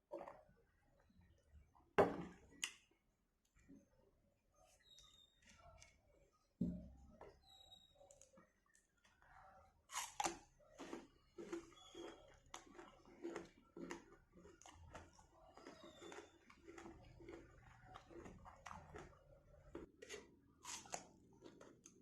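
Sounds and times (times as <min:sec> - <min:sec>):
chewing crunchy mango: 0:09.2 - 0:22.0.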